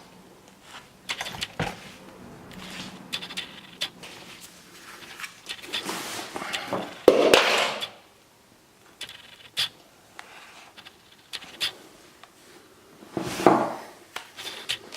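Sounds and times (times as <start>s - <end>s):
handling clicks and scrapes: 0.5s - 8.0s, 9.0s - 12.4s, 13.2s - 14.9s.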